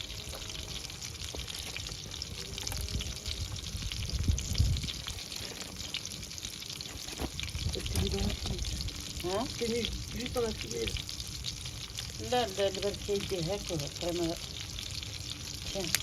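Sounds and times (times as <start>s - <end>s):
wood fire crackling and hissing: 0.0s - 16.0s
low rumble: 1.8s - 6.4s.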